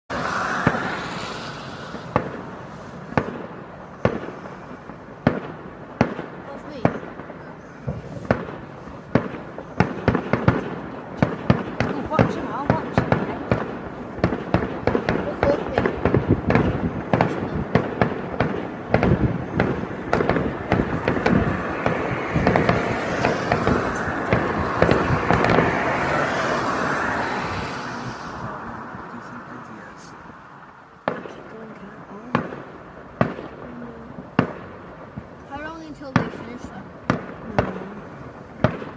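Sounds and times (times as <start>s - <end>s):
fireworks hiss: 0.1s - 5.0s
fireworks bangs: 0.1s - 38.9s.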